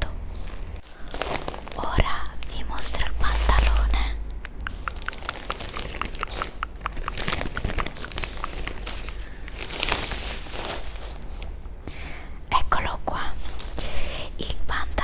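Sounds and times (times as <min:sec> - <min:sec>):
plastic packaging crinkling: 0:00.3 - 0:04.0, 0:04.6 - 0:11.8.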